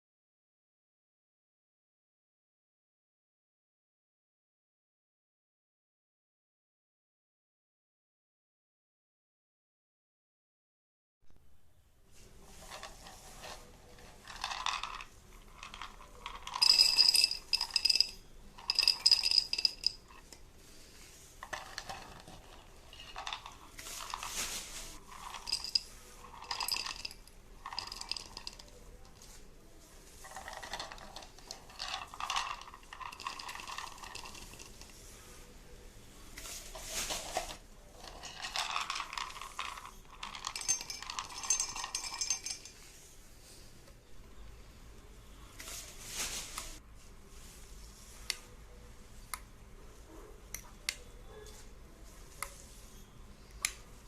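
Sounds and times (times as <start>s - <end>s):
small hard objects clinking: 12.6s - 20.3s, 21.4s - 29.4s, 30.1s - 35.0s, 36.5s - 42.9s.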